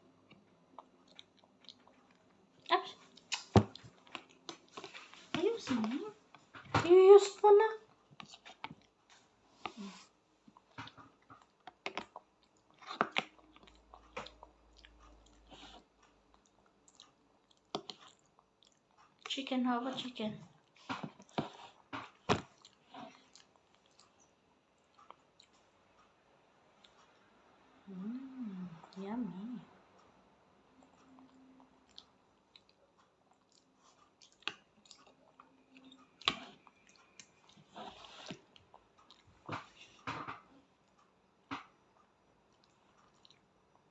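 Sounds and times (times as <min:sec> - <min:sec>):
chewing and biting pasta: 0:00.3 - 0:05.3, 0:07.9 - 0:09.0, 0:09.6 - 0:19.3, 0:30.8 - 0:39.8, 0:42.5 - 0:43.9.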